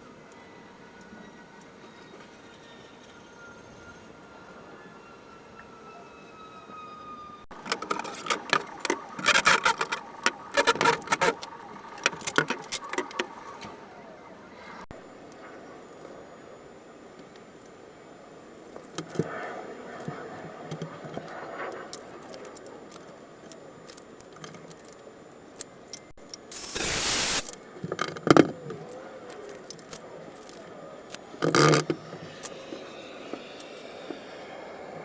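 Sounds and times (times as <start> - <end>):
loud noise burst: 26.5 - 27.5.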